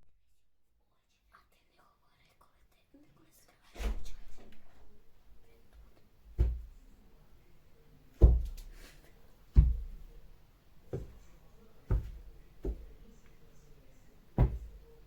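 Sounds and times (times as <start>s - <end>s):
heavy knocks on a door: 6.4s - 6.8s, 8.2s - 8.6s, 9.6s - 10.1s, 11.9s - 13.0s, 14.4s - 14.8s.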